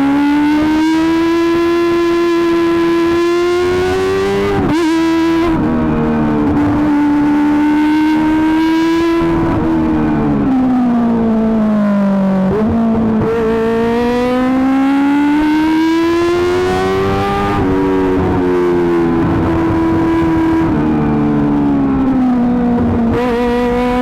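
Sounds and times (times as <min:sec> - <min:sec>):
motorcycle engine revving hard: 0:00.0 - 0:24.0.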